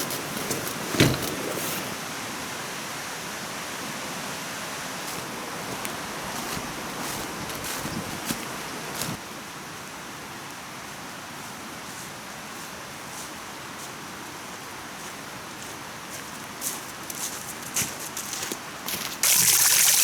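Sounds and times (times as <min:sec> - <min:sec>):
stream flowing: 0:00.0 - 0:09.2.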